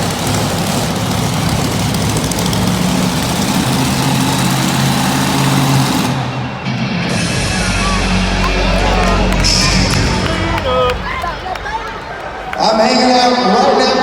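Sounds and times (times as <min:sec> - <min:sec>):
monster truck engine running: 0:00.0 - 0:12.6
arena crowd roar: 0:00.0 - 0:14.0.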